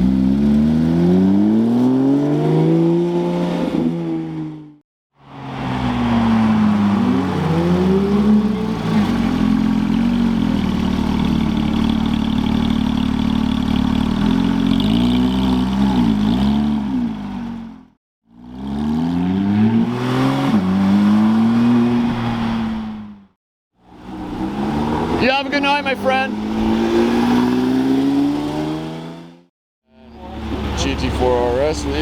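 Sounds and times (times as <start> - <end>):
sports car engines revving: 0.0 - 4.7, 5.3 - 23.2, 23.9 - 32.0
engine throttle blips: 24.2 - 27.7, 30.0 - 32.0.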